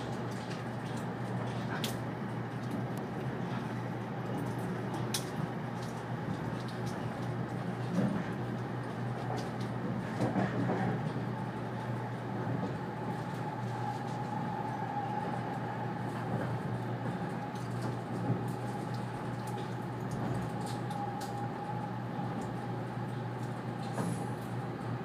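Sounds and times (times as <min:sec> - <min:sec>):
train running rumble: 0:00.0 - 0:25.0.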